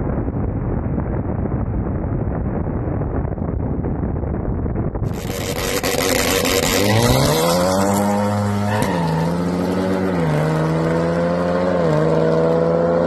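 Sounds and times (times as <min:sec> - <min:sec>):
engine note rising with gear changes: 0:05.1 - 0:13.0
racing cars accelerating: 0:05.1 - 0:13.0.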